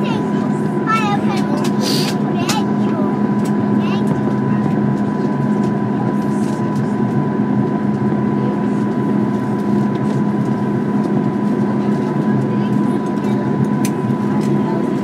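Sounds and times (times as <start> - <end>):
jet engine cabin noise: 0.0 - 15.0.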